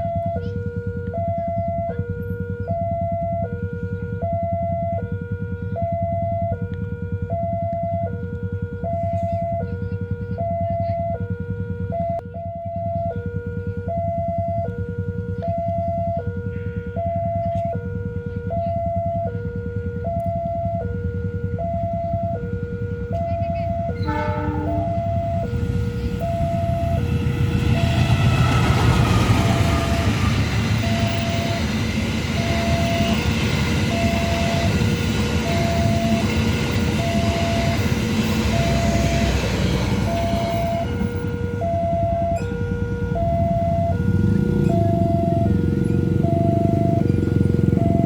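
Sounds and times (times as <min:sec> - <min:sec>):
two-tone warning alarm: 0:00.0 - 0:48.0
train rumbling past: 0:23.6 - 0:48.0.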